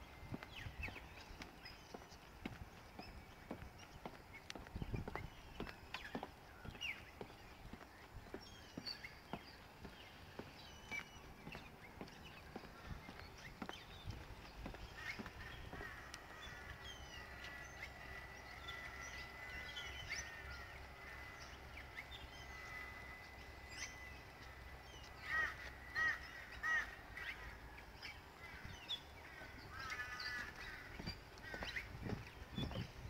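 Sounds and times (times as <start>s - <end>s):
birds chirping and whistling: 0.0s - 33.0s
loud bird calls: 0.0s - 33.0s.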